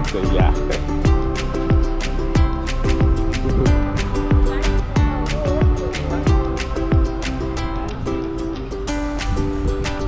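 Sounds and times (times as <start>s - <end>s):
deep drum hits falling in pitch: 0.0s - 7.4s
plucked guitar over held notes: 0.0s - 10.0s.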